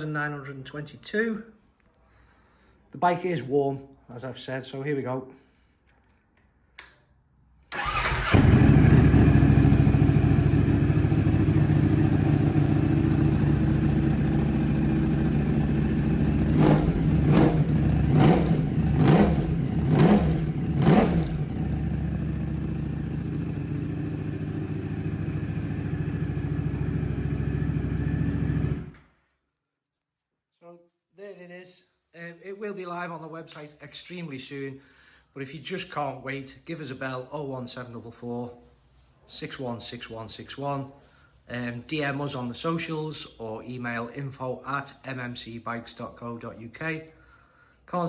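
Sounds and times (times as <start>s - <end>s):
engine throttle blips: 7.8s - 22.8s
motorcycle engine idling: 7.8s - 28.9s.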